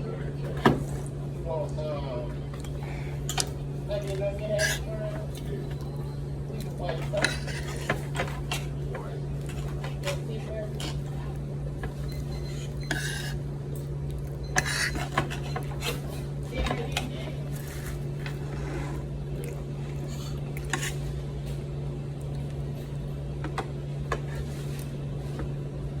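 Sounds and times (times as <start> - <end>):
steady low hum: 0.0 - 26.0
utensils and dishes clinking: 2.5 - 11.2, 11.8 - 18.4.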